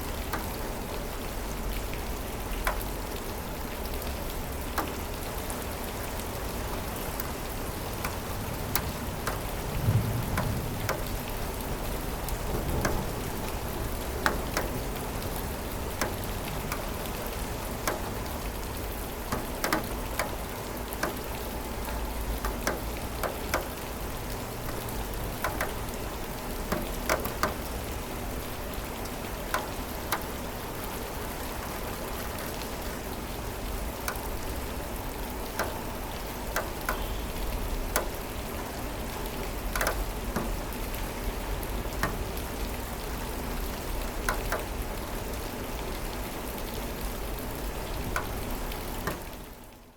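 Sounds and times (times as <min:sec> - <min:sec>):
raindrops tapping hard surface: 0:00.0 - 0:49.8
steady rain: 0:00.0 - 0:49.9
distant thunder rumbling: 0:08.2 - 0:15.7.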